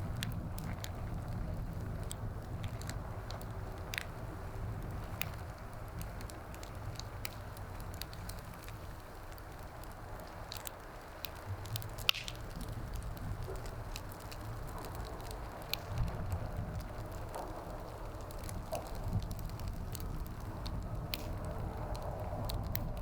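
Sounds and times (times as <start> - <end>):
wood fire crackling: 0.0 - 23.0
low rumble: 11.4 - 23.0.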